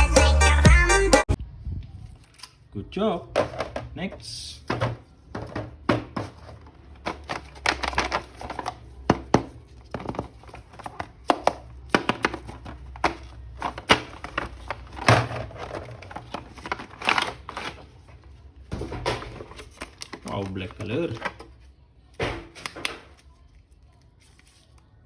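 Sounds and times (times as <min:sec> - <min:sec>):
packaging crinkling: 0:06.3 - 0:09.1, 0:09.7 - 0:18.4, 0:19.2 - 0:21.6.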